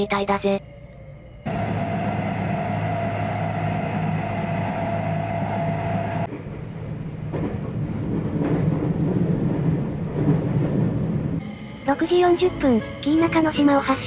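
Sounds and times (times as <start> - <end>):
train rumble on bridge: 1.3 - 11.9
train running noise inside car: 1.5 - 11.5.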